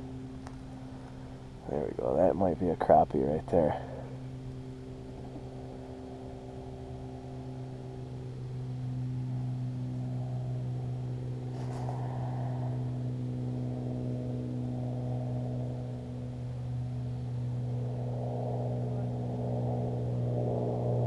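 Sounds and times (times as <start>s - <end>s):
motor humming: 3.5s - 18.2s.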